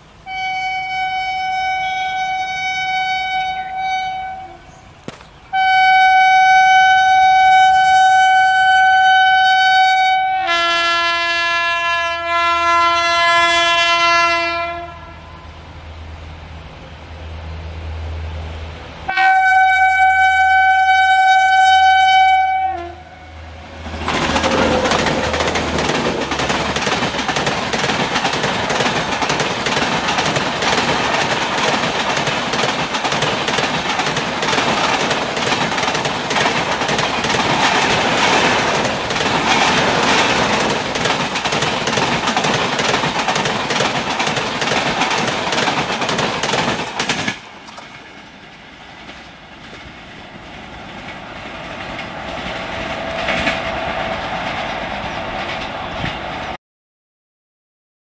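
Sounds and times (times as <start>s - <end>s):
locomotive horn blast: 0.2s - 4.8s, 5.5s - 15.6s, 19.1s - 25.4s
train wheels clattering over rail joints: 23.8s - 56.6s.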